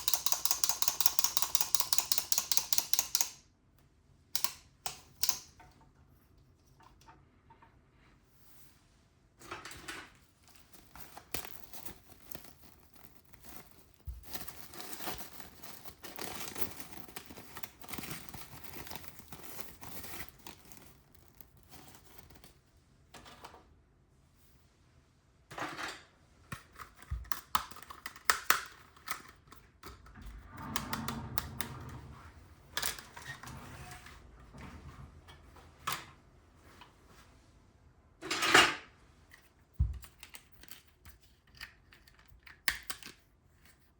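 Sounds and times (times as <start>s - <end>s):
plastic packaging rustling and tearing: 10.4s - 22.6s.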